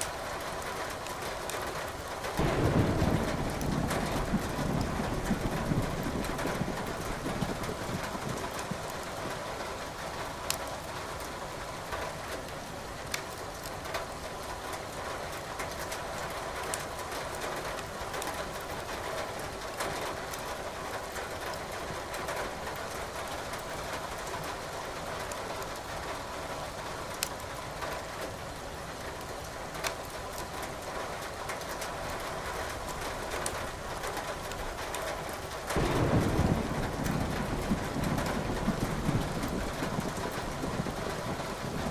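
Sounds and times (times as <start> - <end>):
wood fire crackling and popping: 12.3 - 14.1, 27.1 - 27.5, 32.7 - 41.9
rain hissing: 33.4 - 41.9.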